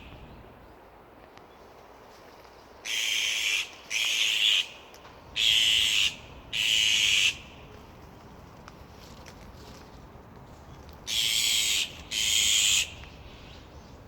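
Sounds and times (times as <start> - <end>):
bird giving harsh rasping calls: 2.9 - 4.8, 5.4 - 7.5, 11.1 - 13.0.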